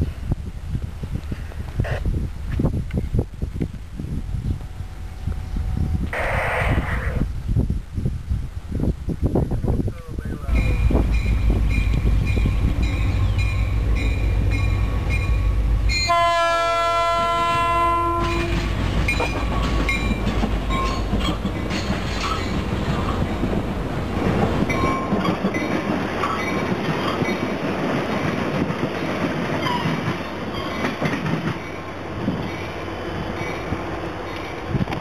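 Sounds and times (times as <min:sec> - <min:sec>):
locomotive horn: 0:16.0 - 0:18.7
wheels clicking over rail joints: 0:17.4 - 0:35.0.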